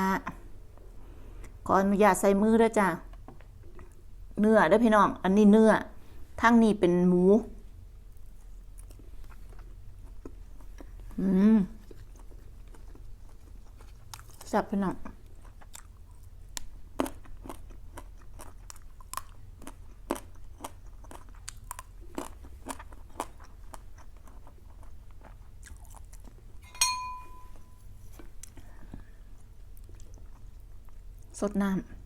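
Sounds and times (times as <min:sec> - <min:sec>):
chewing crunchy food: 0:08.1 - 0:26.6, 0:28.2 - 0:31.4
short ringing clink: 0:26.6 - 0:27.9.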